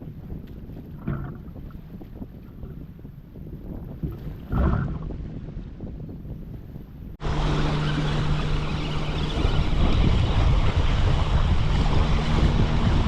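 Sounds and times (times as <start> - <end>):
wind buffeting microphone: 0.0 - 13.0
steady low hum: 7.2 - 13.0.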